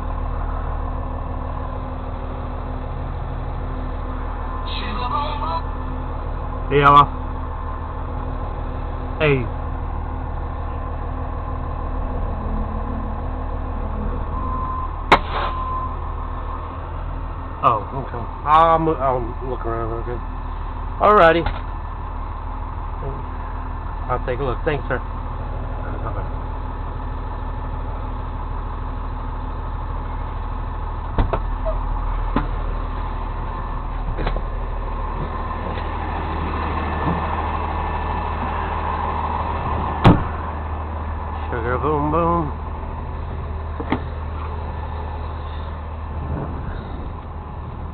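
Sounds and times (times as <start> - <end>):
vehicle engine idling: 0.0 - 47.9
faint steady tone: 9.8 - 18.4
sharp knocks: 40.0 - 40.3.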